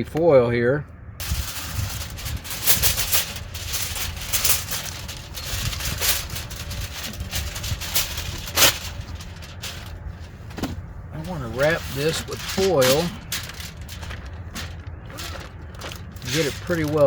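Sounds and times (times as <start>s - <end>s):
aluminium foil crinkling: 1.2s - 10.4s, 11.2s - 17.0s.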